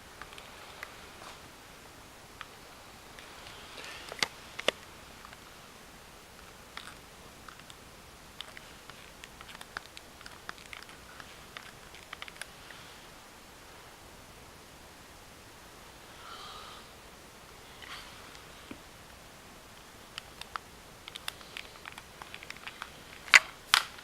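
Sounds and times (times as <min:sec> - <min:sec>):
light clicks and ticks: 0:00.2 - 0:01.4, 0:02.3 - 0:05.6, 0:06.3 - 0:13.2, 0:17.5 - 0:24.0
sharp clicks: 0:02.3 - 0:05.5, 0:06.3 - 0:12.8, 0:17.8 - 0:24.0.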